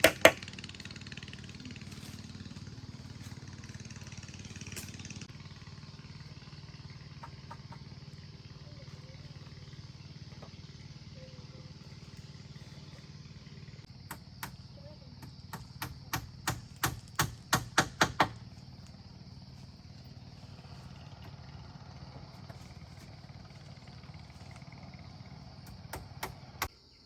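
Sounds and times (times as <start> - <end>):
sharp strikes on wood: 0.0 - 0.5, 15.2 - 18.4
steady low hum: 0.0 - 26.7.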